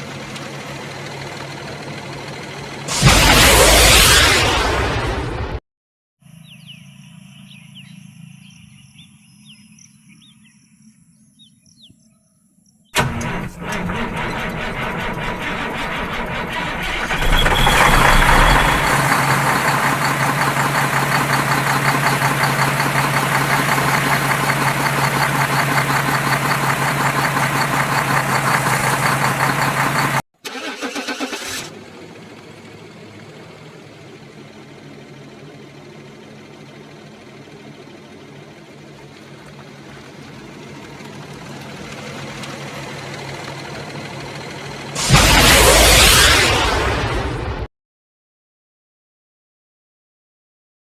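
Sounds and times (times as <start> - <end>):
vehicle engine humming: 0.0 - 3.7, 13.0 - 30.2, 31.7 - 45.6.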